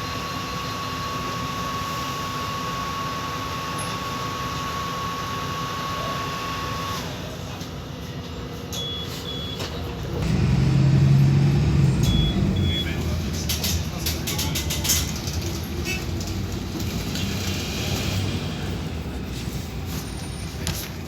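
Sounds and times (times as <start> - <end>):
bus engine with holed exhaust: 0.0 - 21.0
short high beeps: 12.1 - 13.0.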